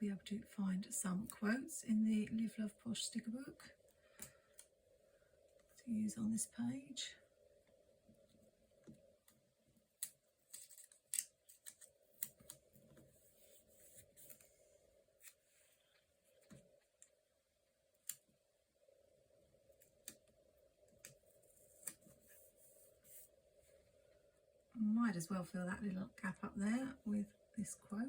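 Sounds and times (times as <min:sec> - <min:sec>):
paper rustling: 0:10.4 - 0:14.6.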